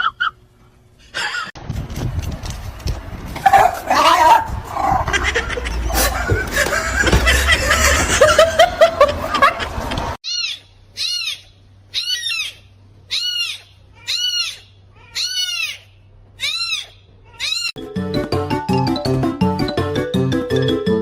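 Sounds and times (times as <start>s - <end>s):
small animal high calls: 10.2s - 17.8s
music: 17.8s - 21.0s.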